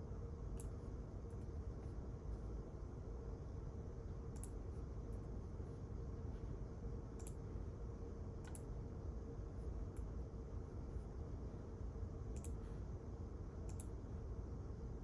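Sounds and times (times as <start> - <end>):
steady low hum: 0.0 - 15.0
light irregular clicks: 0.5 - 0.8, 4.3 - 4.7, 7.1 - 7.4, 8.4 - 8.7, 12.3 - 12.6, 13.6 - 14.0.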